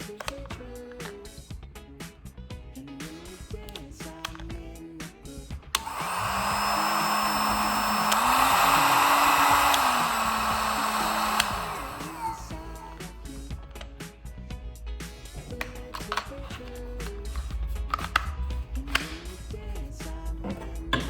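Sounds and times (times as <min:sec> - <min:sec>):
faint music: 0:00.0 - 0:21.0
heat gun fan blowing: 0:05.8 - 0:13.2.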